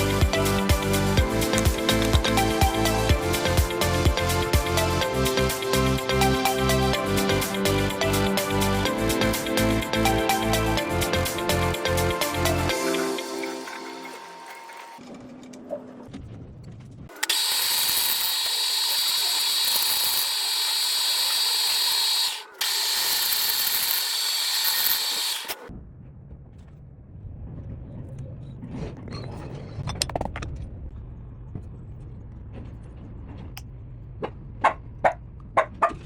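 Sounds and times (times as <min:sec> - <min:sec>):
power tool whining: 0:17.1 - 0:25.7
low rumble: 0:25.7 - 0:35.6.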